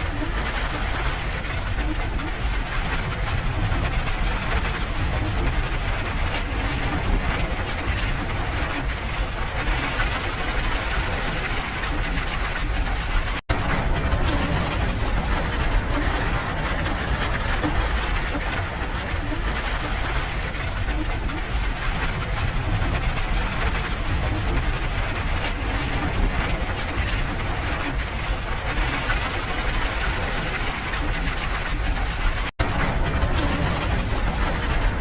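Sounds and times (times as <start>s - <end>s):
steady rain: 0.0s - 35.0s
deep low rumble: 12.1s - 28.0s, 32.6s - 35.0s.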